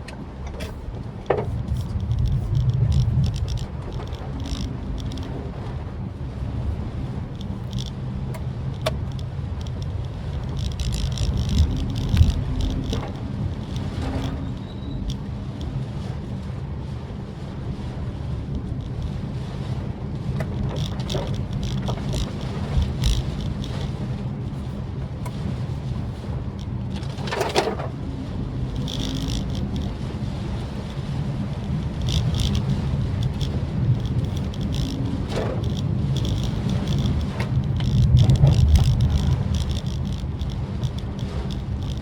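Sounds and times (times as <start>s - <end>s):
car engine and road rumble: 0.0s - 42.0s
clicks: 30.9s - 42.0s.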